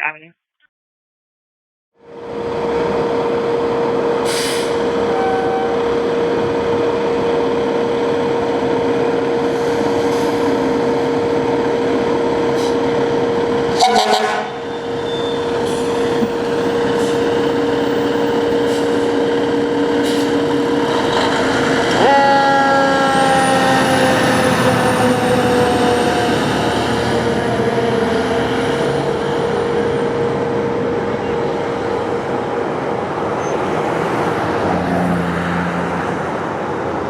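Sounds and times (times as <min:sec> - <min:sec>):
sharp horn blasts: 0:13.8 - 0:14.7
siren tone falling in pitch: 0:22.0 - 0:27.0.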